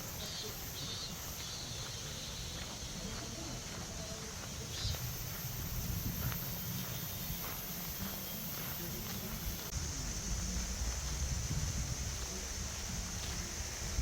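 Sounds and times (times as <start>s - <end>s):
footsteps on trail: 0.0s - 14.0s
high-pitched chirping hum: 0.0s - 14.0s
low rumble: 9.7s - 13.1s.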